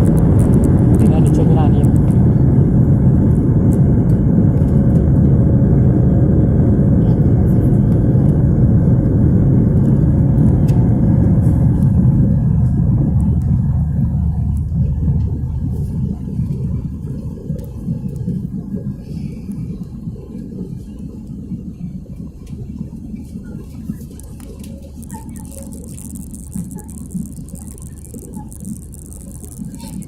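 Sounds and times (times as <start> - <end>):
airplane cabin rumble: 0.0 - 30.0.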